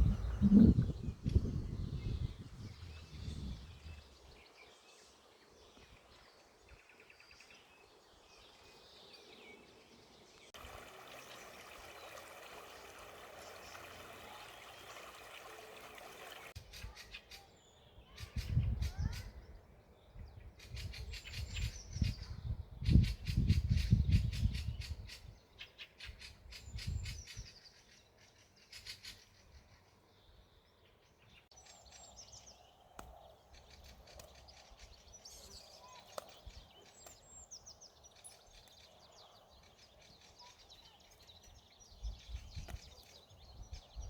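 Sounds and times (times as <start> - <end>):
small birds chirping: 0.0 - 44.0
running water: 10.6 - 16.6.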